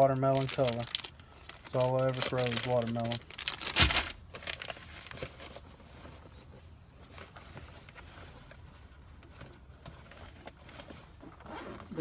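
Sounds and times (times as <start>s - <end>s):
fishing tackle clicking and rustling: 0.0s - 4.7s.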